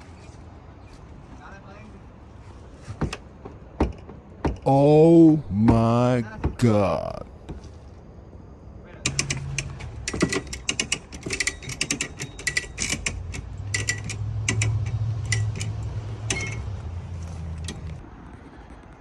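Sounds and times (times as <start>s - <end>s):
low steady hum: 3.9s - 18.1s
mechanical clicking and rattling: 9.0s - 18.0s.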